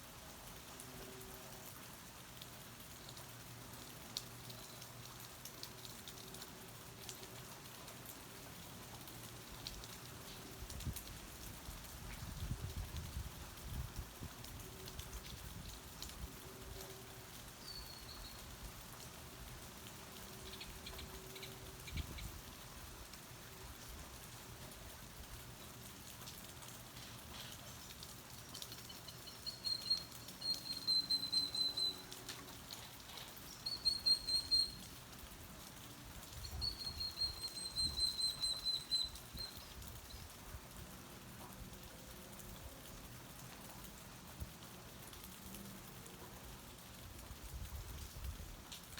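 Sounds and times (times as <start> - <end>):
steady rain falling: 0.0 - 48.9
bird calling and chirping: 17.6 - 18.5, 28.6 - 32.1, 33.1 - 34.9, 36.4 - 39.7.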